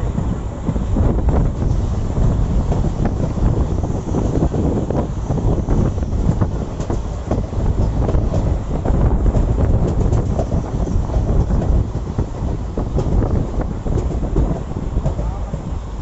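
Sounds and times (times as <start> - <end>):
train wheels clattering on rails: 0.0 - 16.0
wind buffeting microphone: 0.0 - 16.0.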